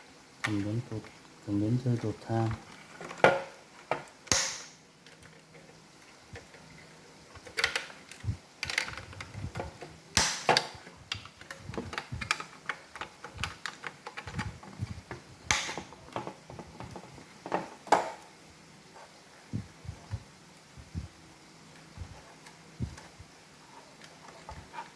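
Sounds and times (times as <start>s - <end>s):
hard plastic parts clicking: 7.4s - 14.5s.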